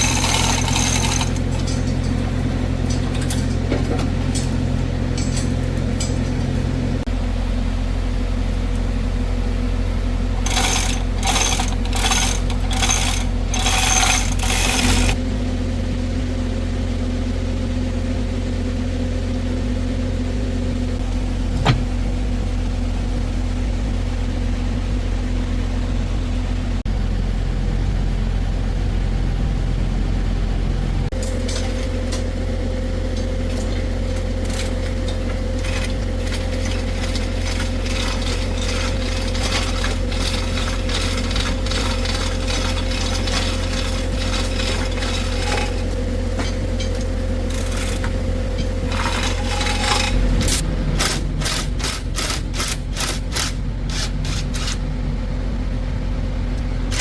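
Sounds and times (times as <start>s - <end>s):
metallic clinks of tools: 0.0s - 6.5s, 10.4s - 15.2s
engine idling: 0.0s - 57.0s.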